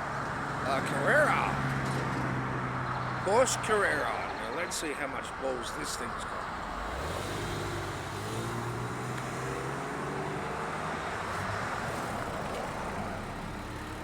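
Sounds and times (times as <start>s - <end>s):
car engine pulling away: 6.3s - 14.0s.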